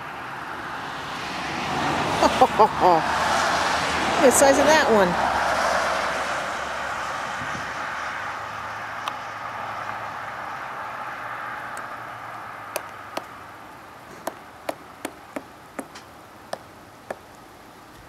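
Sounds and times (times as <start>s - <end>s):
woodpecker tapping on wood: 11.7s - 13.4s, 14.1s - 17.4s.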